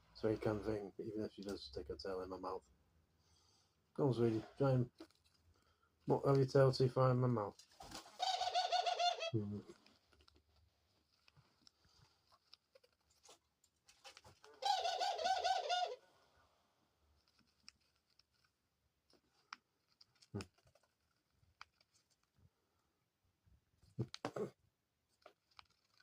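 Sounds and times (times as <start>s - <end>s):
dove trilling call: 8.2s - 9.3s, 14.6s - 16.0s.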